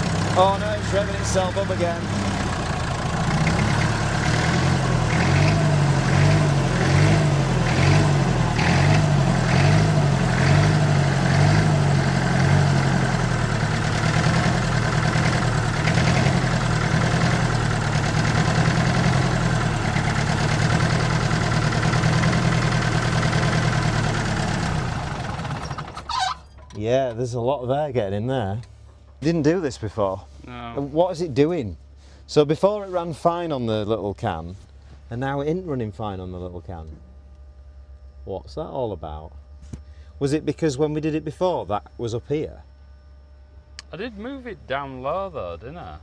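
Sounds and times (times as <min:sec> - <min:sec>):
diesel engine revs surging: 0:00.0 - 0:26.2.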